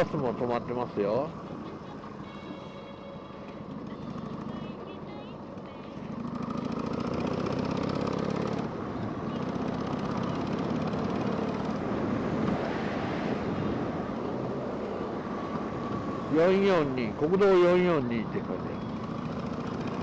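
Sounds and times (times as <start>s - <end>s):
motorcycle engine running: 3.6s - 12.4s, 15.2s - 20.0s.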